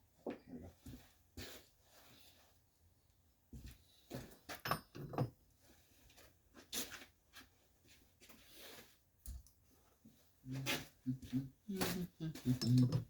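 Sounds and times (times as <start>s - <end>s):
metal parts knocking and clinking: 4.5s - 5.4s, 12.4s - 13.0s.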